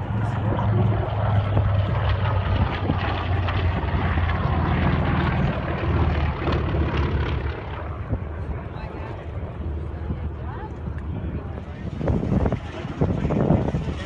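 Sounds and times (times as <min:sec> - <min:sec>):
propeller airplane flying overhead: 0:00.0 - 0:14.0.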